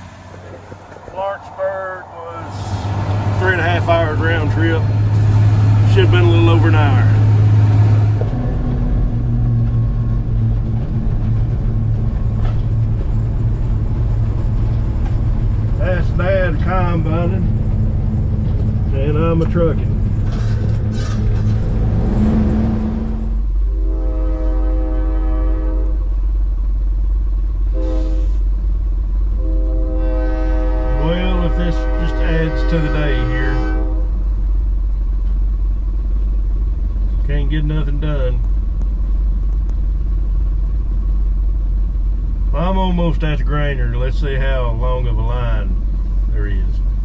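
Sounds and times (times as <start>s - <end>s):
locomotive horn blasts: 0.0s - 8.3s, 22.8s - 26.1s, 27.7s - 28.4s, 29.4s - 34.2s
diesel engine running: 0.0s - 47.0s
steady low rumble: 0.0s - 47.0s.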